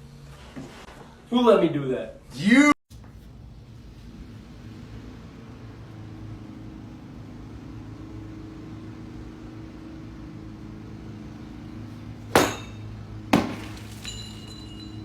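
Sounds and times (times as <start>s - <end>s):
sharp loud impacts: 12.3s - 14.0s.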